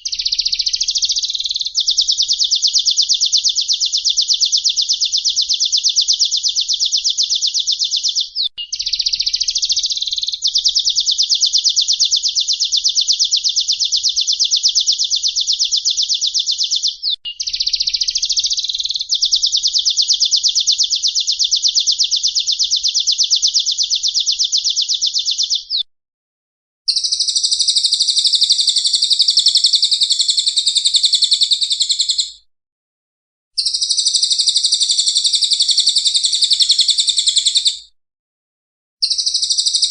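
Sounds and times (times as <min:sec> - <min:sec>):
fuller bird song: 0:00.0 - 0:25.9, 0:26.9 - 0:32.5, 0:33.6 - 0:37.9, 0:39.0 - 0:39.9
songbird high rapid trill: 0:26.9 - 0:32.4, 0:33.6 - 0:37.8, 0:39.0 - 0:39.9.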